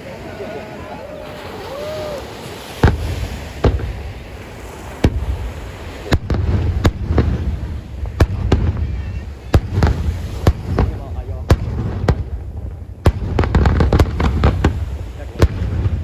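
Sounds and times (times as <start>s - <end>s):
firework bangs: 2.6s - 16.0s
low rolling rumble: 2.8s - 16.0s.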